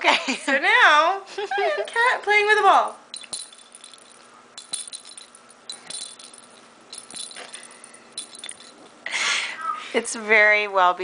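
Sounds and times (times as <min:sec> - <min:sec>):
toy ball jingling: 0:03.1 - 0:08.8.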